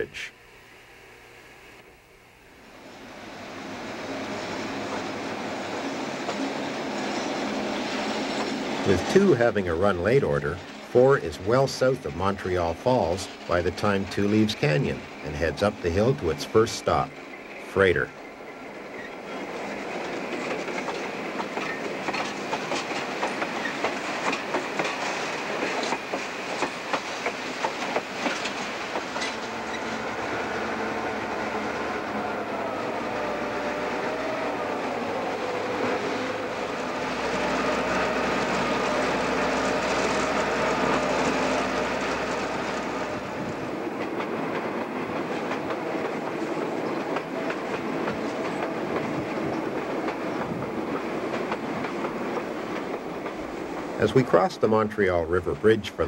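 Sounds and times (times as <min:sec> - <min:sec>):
train running noise: 0:02.6 - 0:56.0
train wheels clicking over rail joints: 0:04.6 - 0:56.0.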